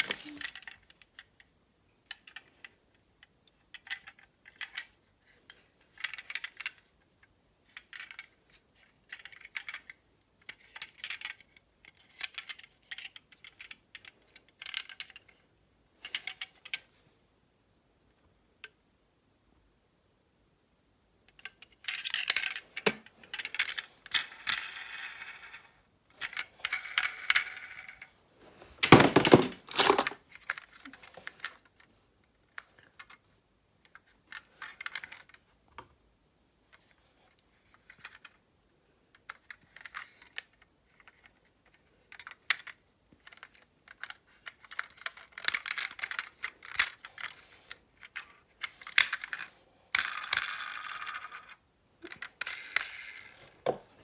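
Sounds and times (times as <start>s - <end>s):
small hard objects clattering: 28.8s - 30.2s.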